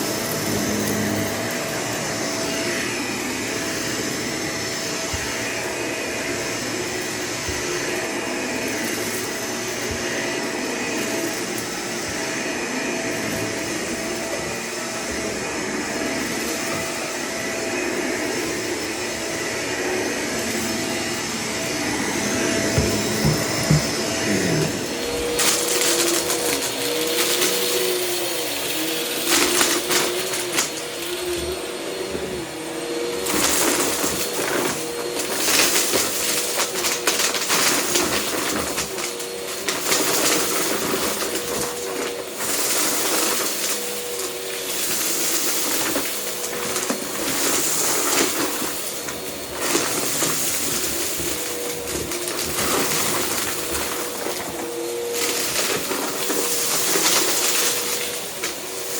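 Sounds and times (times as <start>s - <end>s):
vacuum cleaner motor whine: 0.0s - 58.9s
debris crackling in vacuum: 19.5s - 58.9s.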